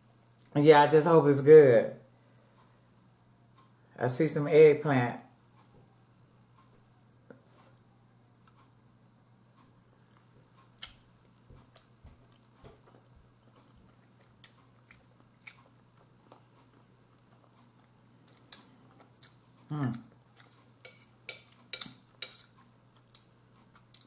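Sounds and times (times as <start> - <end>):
chewing and lip smacks: 10.0 - 20.8
fork clicking on a plate: 19.2 - 23.2.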